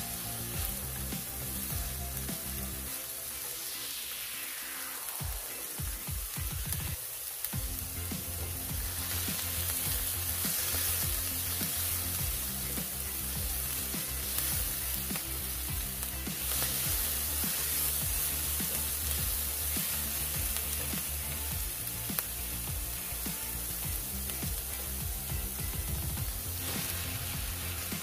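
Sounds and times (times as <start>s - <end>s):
background music: 0.0s - 28.0s
vegetables sizzling in oil: 0.0s - 28.0s.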